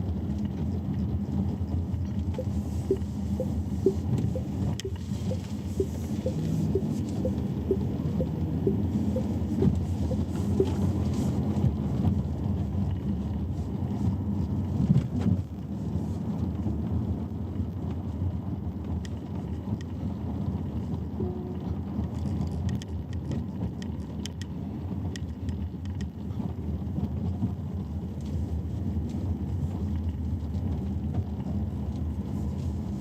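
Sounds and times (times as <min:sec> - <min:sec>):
road and tyre noise in car: 0:00.0 - 0:33.0
soft ticking: 0:02.3 - 0:10.8.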